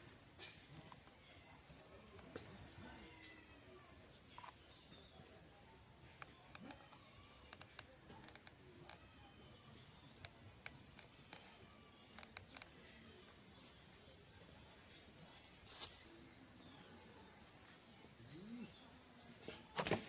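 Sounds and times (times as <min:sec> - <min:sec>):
insects chirping: 0:00.0 - 0:20.0
faint clicks: 0:06.0 - 0:13.4.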